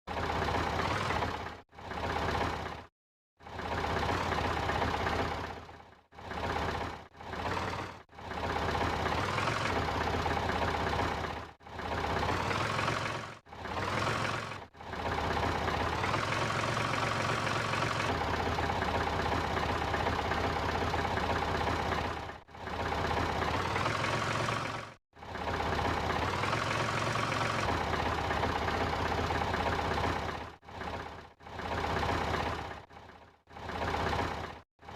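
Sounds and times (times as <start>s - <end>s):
small truck engine running: 0.0s - 34.9s.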